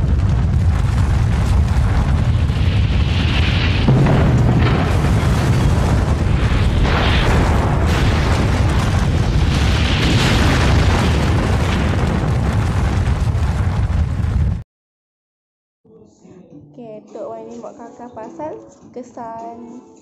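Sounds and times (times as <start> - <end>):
explosion rumbling roar: 0.0 - 14.6.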